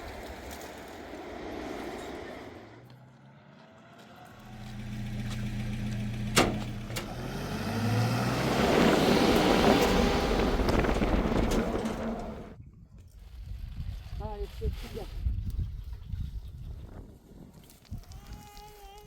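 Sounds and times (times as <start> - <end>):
vehicle engine humming: 0.2 - 12.6.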